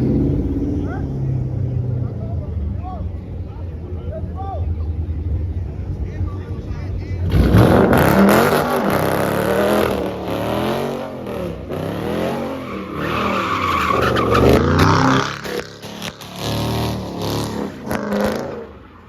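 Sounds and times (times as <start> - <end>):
car engine revving: 0.0 - 19.0
tyres squealing: 12.2 - 16.3.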